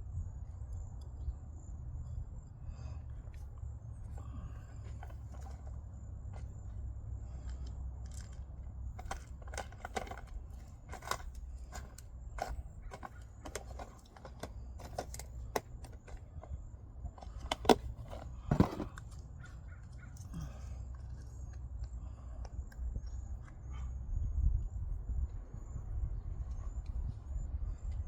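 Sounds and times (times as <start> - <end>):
steady low rumble: 0.0 - 28.0
hands and tools tapping in soil: 3.3 - 23.6.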